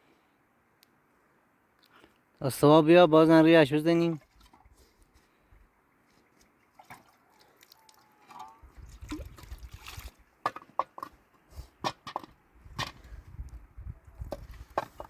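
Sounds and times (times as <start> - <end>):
water sloshing and trickling: 4.0 - 5.4, 6.2 - 11.2.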